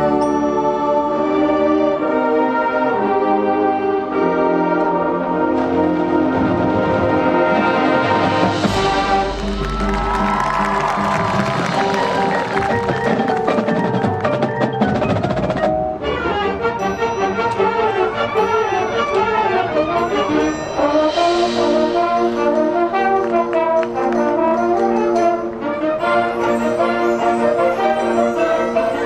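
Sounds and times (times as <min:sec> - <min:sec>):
marching band brass and drums: 0:02.0 - 0:29.0
mallet percussion playing: 0:08.7 - 0:16.0, 0:16.8 - 0:29.0.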